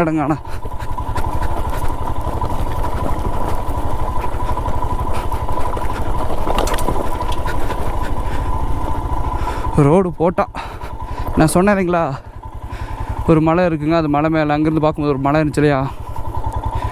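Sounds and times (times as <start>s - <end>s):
steady whine: 0.0s - 16.9s
motorcycle engine thudding: 0.4s - 13.3s.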